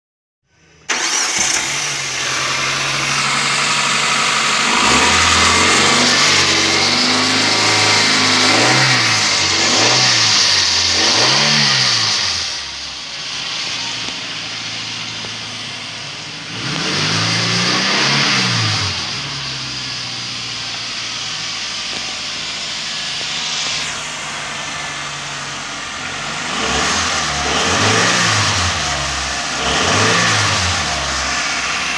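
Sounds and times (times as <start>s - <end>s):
car engine revving: 0.8s - 31.9s.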